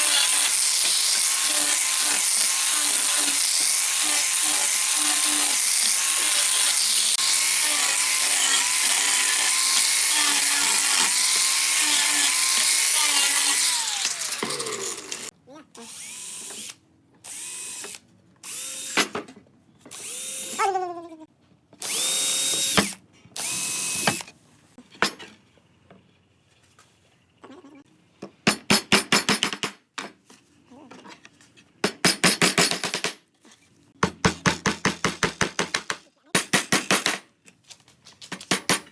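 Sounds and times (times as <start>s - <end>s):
cordless drill driving screws: 0.0s - 15.3s, 19.9s - 20.6s, 21.8s - 24.3s.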